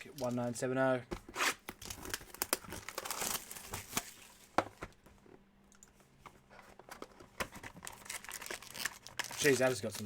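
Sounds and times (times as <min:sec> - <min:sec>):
wrapper crinkling and clicking: 0:07.7 - 0:10.0.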